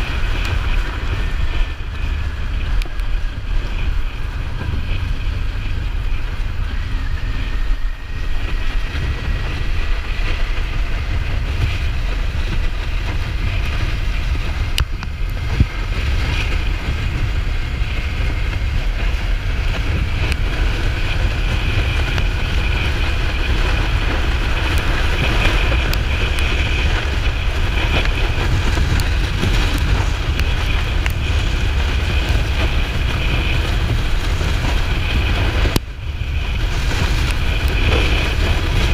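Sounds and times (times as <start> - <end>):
motorcycle engine running: 0.0 - 38.9
wind buffeting microphone: 0.0 - 38.9.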